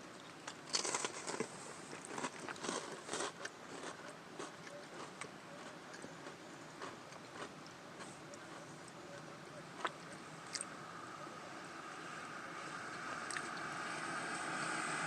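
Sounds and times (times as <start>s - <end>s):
food handling clicks and rustles: 0.2s - 7.5s
crunching and chewing snack: 0.2s - 9.2s, 13.2s - 13.7s.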